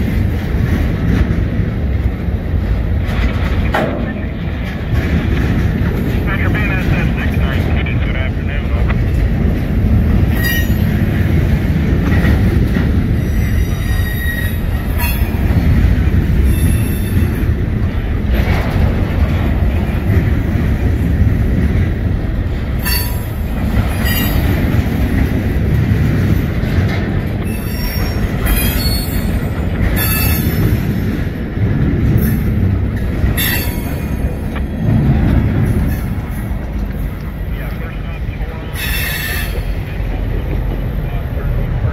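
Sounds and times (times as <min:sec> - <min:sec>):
freight cars rumbling on rails: 0:00.0 - 0:41.9
high-pitched wheel squeals: 0:10.3 - 0:10.9, 0:13.2 - 0:15.4, 0:27.4 - 0:29.4, 0:30.0 - 0:30.8, 0:38.7 - 0:39.7.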